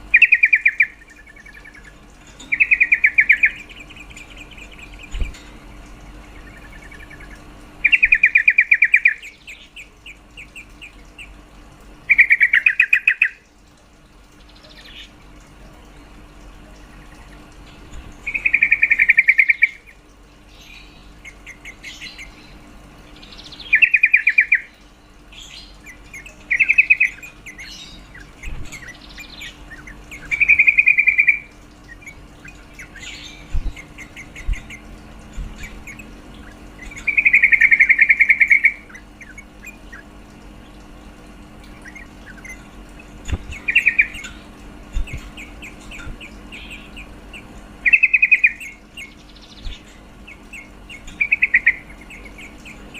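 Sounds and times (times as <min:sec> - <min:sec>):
soft bird chirps: 0:00.0 - 0:11.4, 0:14.3 - 0:41.0, 0:41.6 - 0:52.9
bird chattering: 0:00.1 - 0:11.4, 0:12.0 - 0:13.4, 0:18.2 - 0:20.0, 0:23.2 - 0:24.8, 0:25.4 - 0:35.0, 0:35.6 - 0:40.2, 0:41.7 - 0:52.9.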